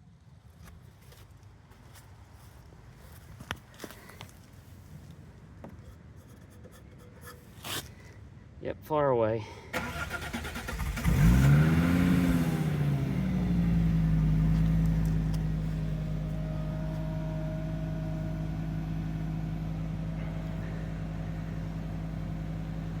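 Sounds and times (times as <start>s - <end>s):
car engine revving then idling: 9.8s - 23.0s.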